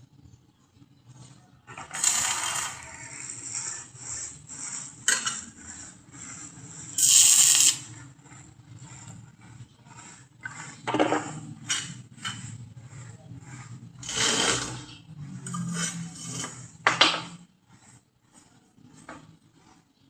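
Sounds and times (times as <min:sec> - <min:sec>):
harsh metal scraping: 0:01.1 - 0:20.0.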